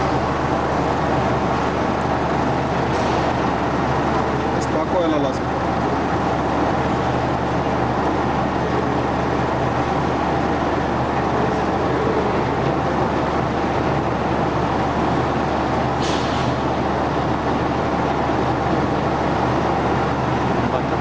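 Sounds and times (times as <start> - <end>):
vibratory separator running: 0.0 - 16.0.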